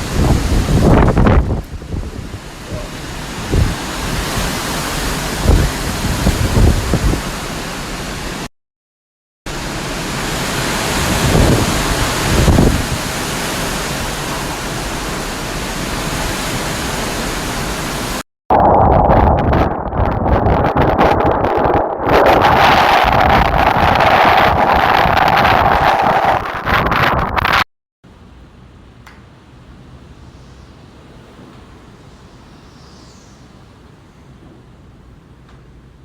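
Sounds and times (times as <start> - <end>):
gusts thumping on microphone: 0.0 - 7.4, 11.0 - 13.1, 18.5 - 27.6
wind and rain rushing: 0.0 - 8.5, 9.5 - 27.6.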